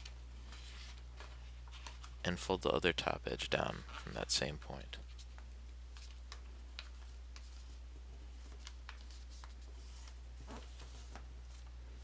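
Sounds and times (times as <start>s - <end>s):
low electrical hum: 0.0s - 12.0s
paper being folded: 5.1s - 11.8s.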